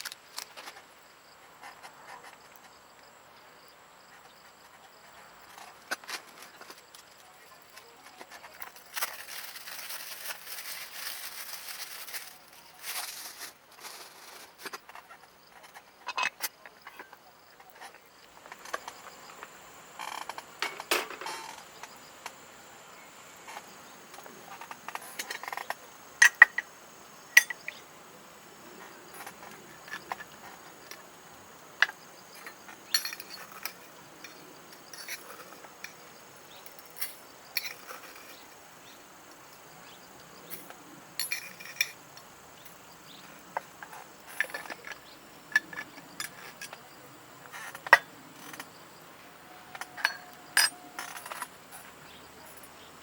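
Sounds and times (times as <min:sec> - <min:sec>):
high insect drone: 0:00.0 - 0:53.0
metallic clinks of utensils: 0:49.7 - 0:51.5.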